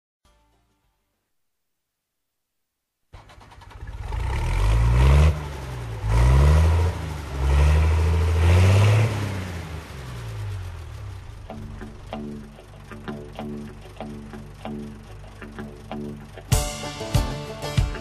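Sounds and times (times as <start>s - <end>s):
engine revving: 3.2s - 16.5s.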